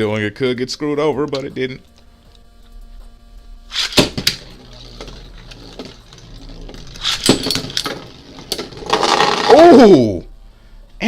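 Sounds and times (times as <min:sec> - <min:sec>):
spinning tops clacking together: 0:03.7 - 0:09.6
spinning top whir: 0:03.7 - 0:09.7.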